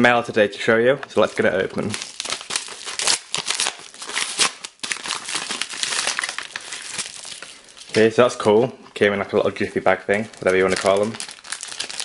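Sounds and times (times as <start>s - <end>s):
padded mailer tearing and crinkling: 1.8s - 8.1s, 10.3s - 12.0s.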